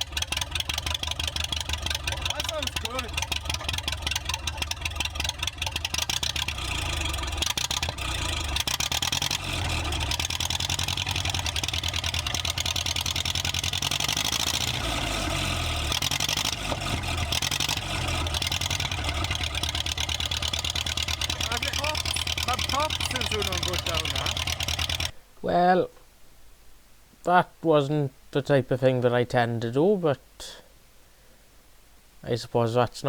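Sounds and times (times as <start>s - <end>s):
tractor engine running: 0.0s - 25.2s.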